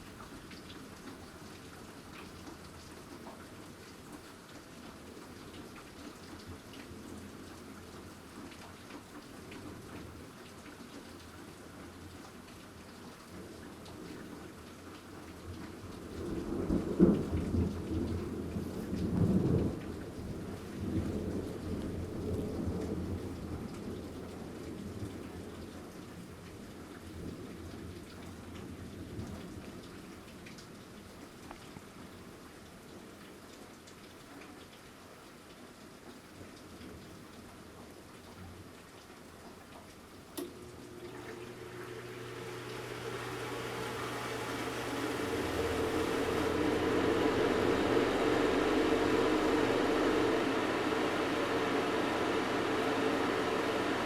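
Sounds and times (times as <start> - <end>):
steady rain: 0.0 - 54.0
mechanical hum: 40.4 - 54.0
thunder rumbling: 45.1 - 53.4.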